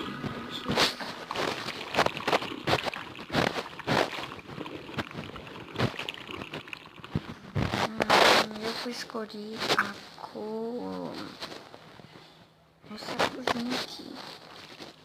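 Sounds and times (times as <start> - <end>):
slime squelching by hand: 0.0 - 11.6.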